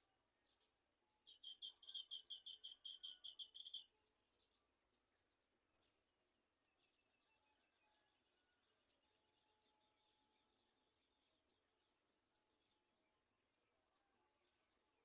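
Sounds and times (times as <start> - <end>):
bird calling: 1.4 - 3.9.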